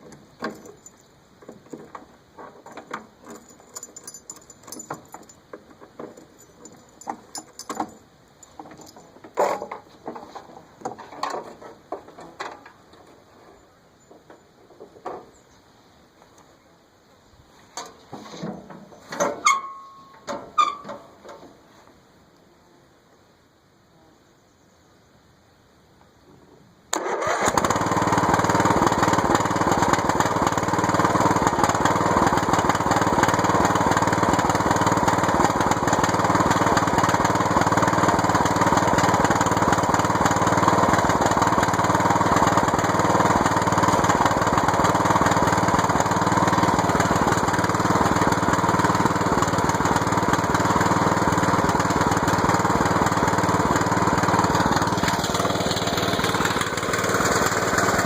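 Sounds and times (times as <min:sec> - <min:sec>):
lawn mower engine running: 0:00.0 - 0:11.4, 0:26.9 - 0:58.0.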